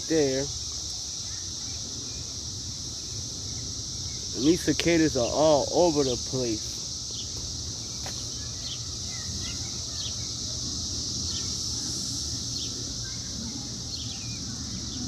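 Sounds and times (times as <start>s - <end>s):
cicadas droning: 0.0s - 15.0s
bird chirps: 11.2s - 15.0s.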